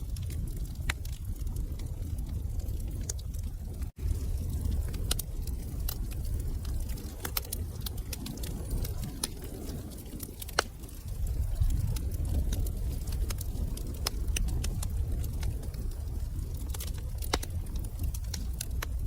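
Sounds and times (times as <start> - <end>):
low rumble of flames: 0.0 - 19.0
wood fire pops and snaps: 0.0 - 19.0.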